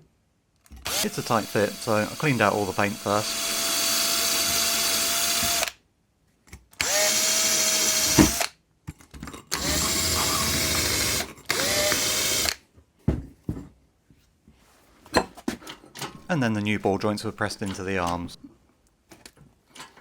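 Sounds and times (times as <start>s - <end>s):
power drill whine: 0.8s - 5.8s, 6.8s - 8.5s, 9.5s - 12.6s.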